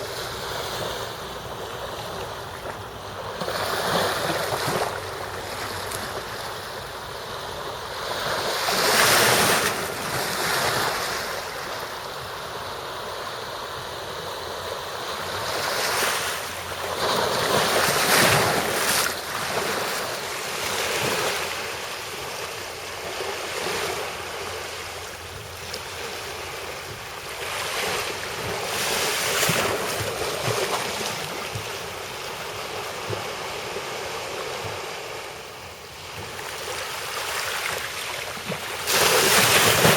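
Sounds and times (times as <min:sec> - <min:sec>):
sea waves washing ashore: 0:00.0 - 0:39.9
wind: 0:00.0 - 0:39.9.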